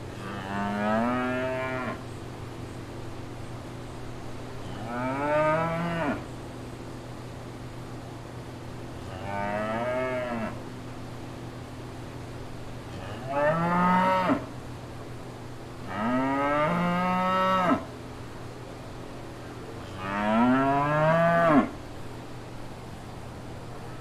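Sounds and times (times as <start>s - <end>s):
cow mooing: 0.2s - 2.0s, 4.8s - 6.3s, 13.0s - 14.5s, 20.0s - 21.8s.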